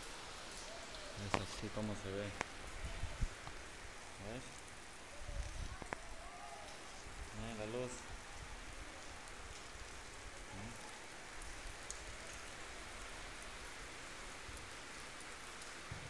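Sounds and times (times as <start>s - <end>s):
rain falling on a street: 0.0s - 16.0s
faint drip ticks: 9.0s - 15.9s.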